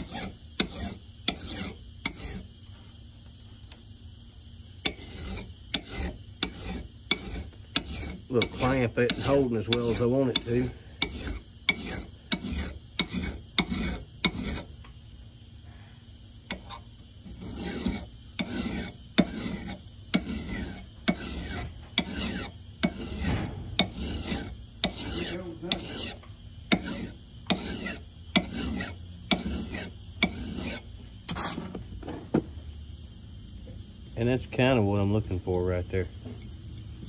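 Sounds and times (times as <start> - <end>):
file rasping on steel: 0.0 - 2.5, 4.8 - 14.7, 16.5 - 31.6.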